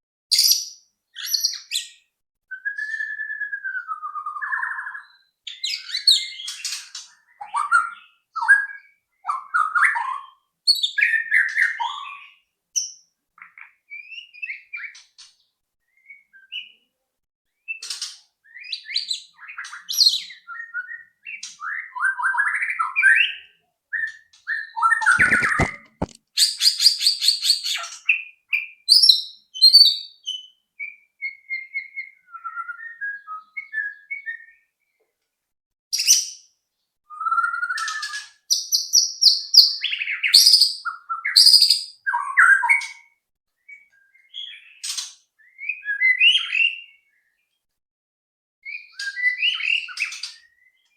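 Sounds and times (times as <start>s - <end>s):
bird singing whistled phrases: 0.3s - 6.6s, 7.3s - 12.4s, 28.9s - 34.7s, 37.1s - 43.0s, 45.4s - 47.2s, 48.6s - 50.9s
harsh rapid bird rattle: 25.1s - 26.2s.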